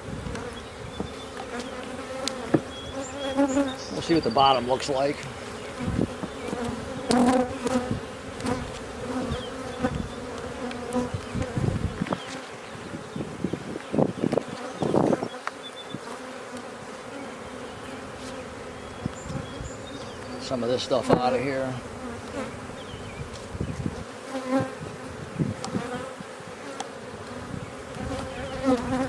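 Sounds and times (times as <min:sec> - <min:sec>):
honey bees buzzing: 0:00.0 - 0:29.0.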